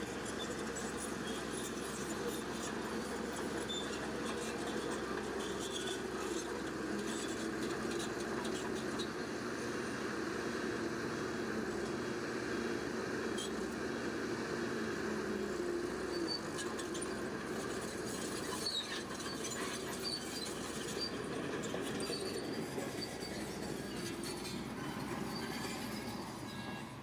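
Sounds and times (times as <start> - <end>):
steel tracks squeaking and clicking: 0.0 - 9.3, 15.5 - 27.0
bulldozer diesel engine running: 0.0 - 27.0.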